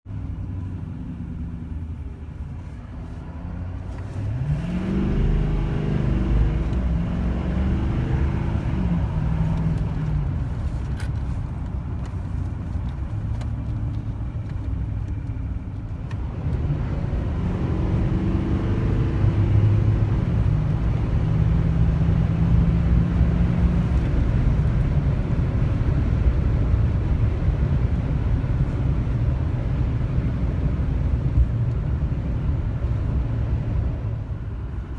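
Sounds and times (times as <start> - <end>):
road rumble: 0.0 - 34.9
diesel truck engine pulling hard: 3.2 - 10.8, 16.2 - 34.9.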